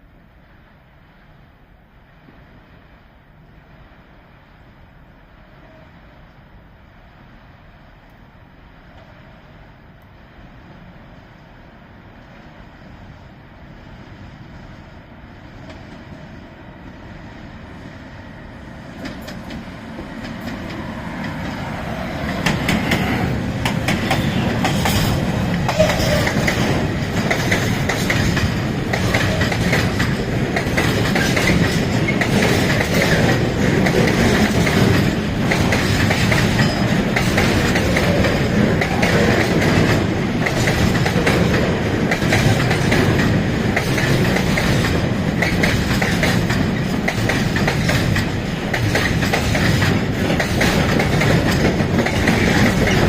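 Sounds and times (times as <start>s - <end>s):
train wheels clacking over rail joints: 19.0s - 53.0s.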